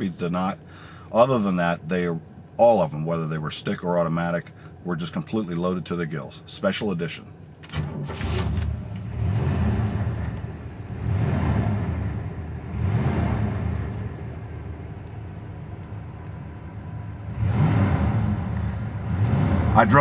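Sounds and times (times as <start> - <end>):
engine idling and revving: 7.7 - 20.0.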